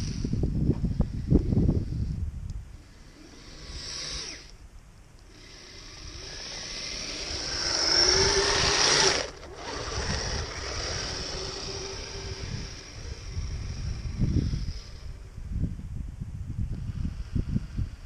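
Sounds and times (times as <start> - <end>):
toy vehicle motor whining: 2.9 - 4.6, 5.2 - 15.3.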